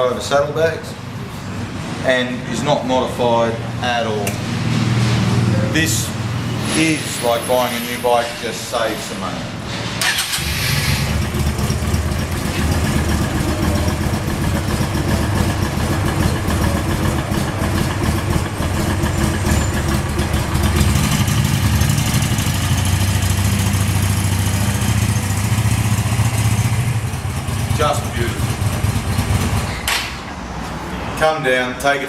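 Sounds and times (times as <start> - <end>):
motorcycle engine idling: 10.2 - 29.7.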